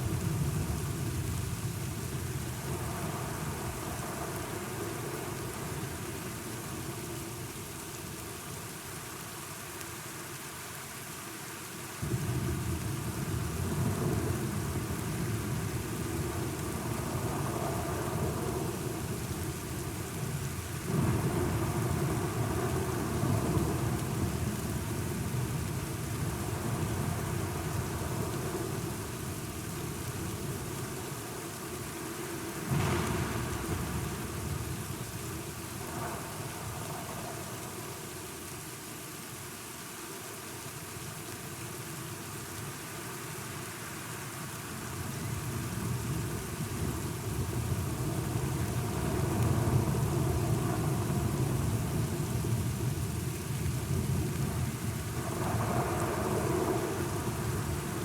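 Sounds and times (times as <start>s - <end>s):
steady rain: 0.0s - 58.0s
rolling thunder: 32.6s - 37.6s, 53.7s - 58.0s.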